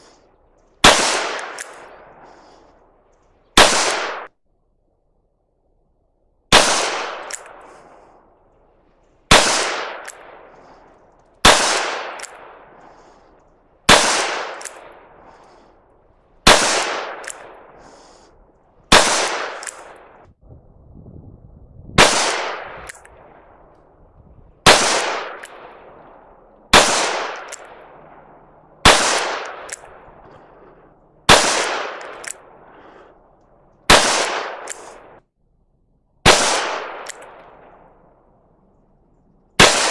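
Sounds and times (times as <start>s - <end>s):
revolver gunshots echoing: 0.8s - 2.6s, 3.6s - 4.3s, 6.5s - 8.2s, 9.3s - 13.2s, 13.8s - 15.6s, 16.4s - 18.1s, 18.8s - 20.3s, 22.0s - 23.7s, 24.6s - 35.2s, 36.2s - 38.2s, 39.6s - 39.9s.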